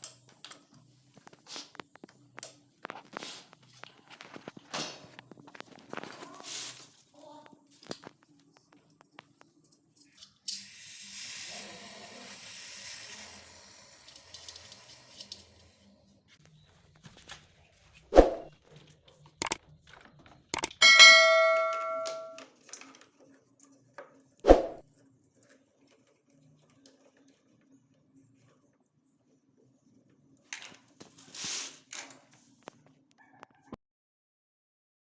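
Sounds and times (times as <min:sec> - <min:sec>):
metallic clang ringing: 0:20.7 - 0:22.4.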